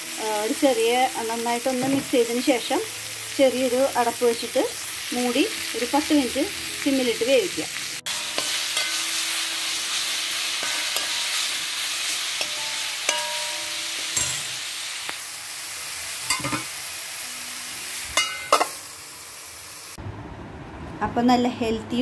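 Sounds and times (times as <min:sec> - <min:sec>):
leaves sizzling in hot oil: 0:00.0 - 0:20.0
spatula scraping a wok: 0:08.0 - 0:14.6
metal lid clinking on pan: 0:12.4 - 0:14.6, 0:16.3 - 0:16.7, 0:18.2 - 0:18.7.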